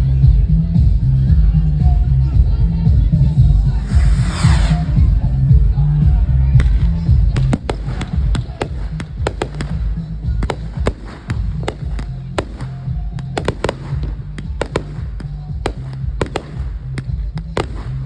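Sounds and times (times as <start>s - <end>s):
fireworks crackling and popping: 6.6s - 18.0s.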